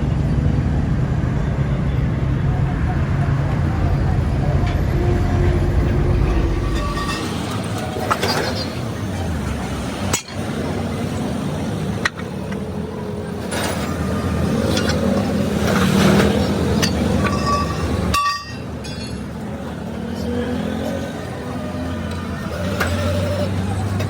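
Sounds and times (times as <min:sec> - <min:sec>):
road traffic noise: 0:00.0 - 0:24.0
vehicle engine rumble: 0:00.0 - 0:24.0
ringing metallic tone: 0:03.8 - 0:08.9, 0:16.4 - 0:19.4.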